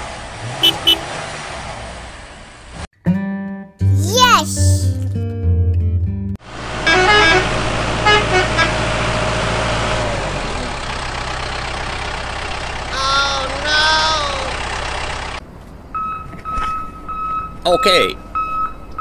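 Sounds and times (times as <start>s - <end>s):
vehicle engine running: 0.0s - 2.8s, 6.4s - 15.4s
car horn toots: 0.5s - 1.2s, 6.8s - 8.8s.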